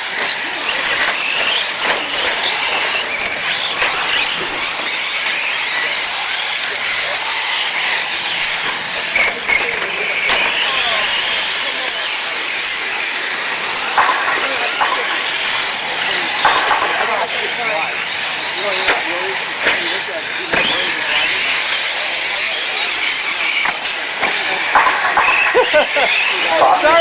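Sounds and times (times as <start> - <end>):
rc truck motors whining: 0.0 - 27.0
tyres scrabbling on surface: 13.6 - 17.6, 23.5 - 27.0
sharp knocks: 14.0 - 15.2, 16.4 - 17.2.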